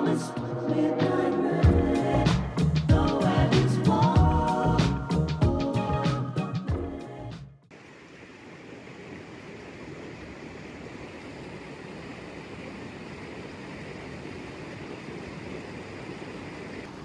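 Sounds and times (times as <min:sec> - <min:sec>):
waterfall and stream rushing: 0:07.7 - 0:17.0.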